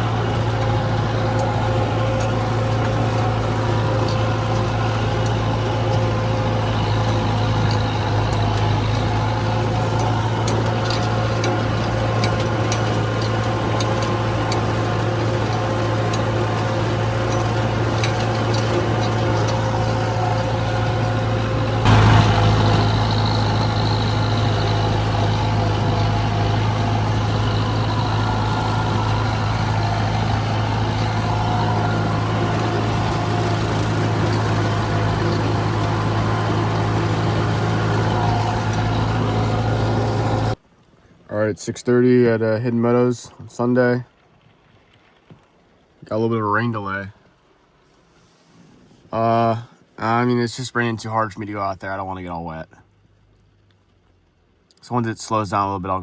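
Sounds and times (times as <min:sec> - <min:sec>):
large engine humming: 0:00.0 - 0:40.6.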